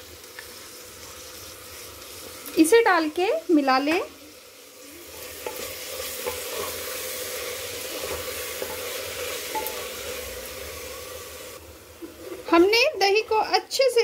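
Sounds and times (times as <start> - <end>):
vegetables sizzling in a pot: 0.0 - 14.0
spatula tapping a pot: 9.5 - 9.8.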